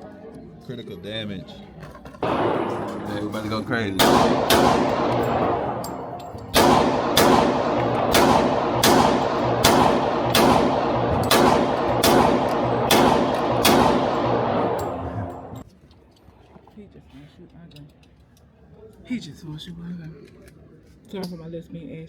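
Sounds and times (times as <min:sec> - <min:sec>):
pistol shots echoing: 0:02.2 - 0:15.6.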